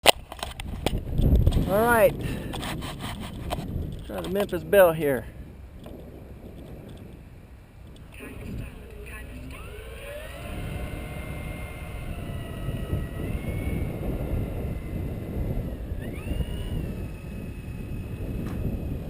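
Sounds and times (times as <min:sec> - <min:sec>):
wind rumble on microphone: 0:00.0 - 0:19.0
electric model plane motors whining: 0:07.8 - 0:19.0.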